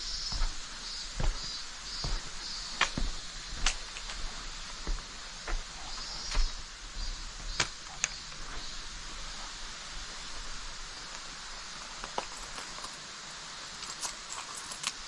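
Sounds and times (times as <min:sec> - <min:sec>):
footsteps on trail: 0:00.0 - 0:11.3
steady outdoor hiss: 0:00.0 - 0:15.0.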